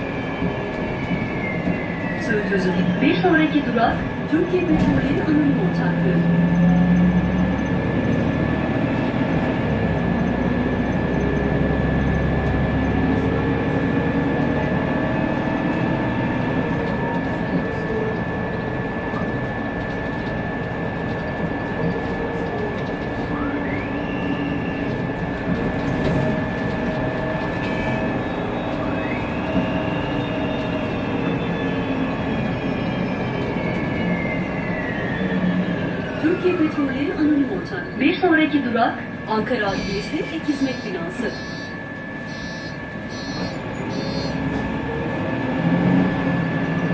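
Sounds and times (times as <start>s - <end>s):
gearbox whistle rising in pitch: 0.0s - 3.1s, 23.2s - 25.2s, 27.6s - 36.5s, 39.7s - 44.5s
bus engine rumble: 0.0s - 46.9s.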